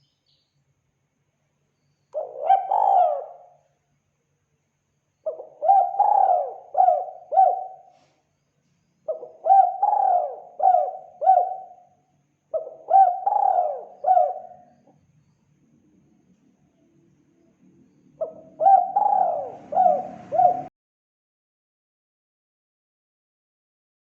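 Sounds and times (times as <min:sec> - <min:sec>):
dove cooing: 0:02.2 - 0:03.6, 0:05.2 - 0:08.1, 0:09.1 - 0:11.8, 0:12.5 - 0:14.8, 0:18.2 - 0:20.7.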